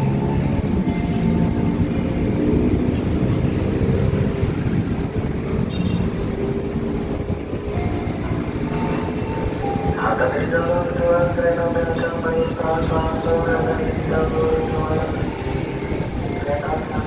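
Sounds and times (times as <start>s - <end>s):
locomotive and train rumble: 0.0s - 17.0s
high-pitched squeal: 11.9s - 15.2s.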